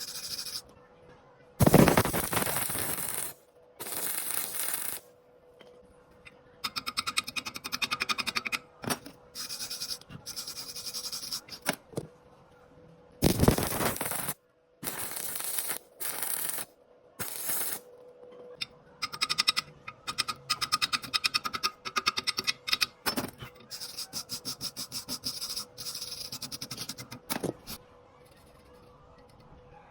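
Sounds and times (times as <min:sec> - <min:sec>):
arc welding crackle: 0:01.6 - 0:05.1, 0:13.2 - 0:17.9.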